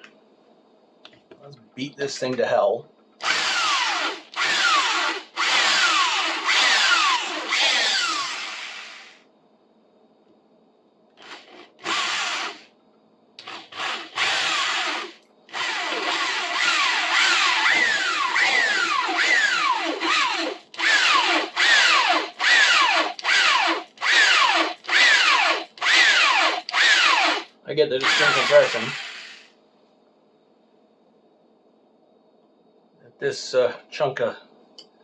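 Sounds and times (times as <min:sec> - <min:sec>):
electric drill boring into wood: 0:03.2 - 0:09.2, 0:11.2 - 0:12.7, 0:13.4 - 0:29.5.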